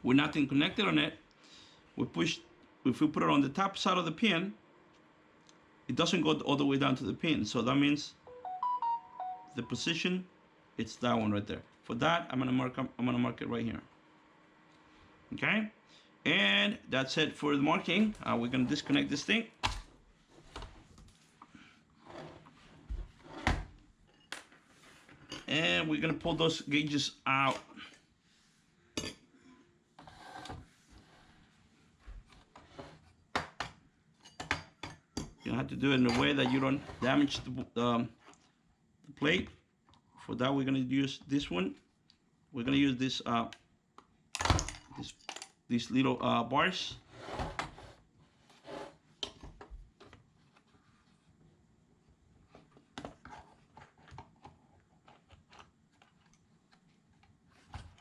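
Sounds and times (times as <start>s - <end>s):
soft scrape: 30.0s - 31.6s, 47.1s - 49.0s.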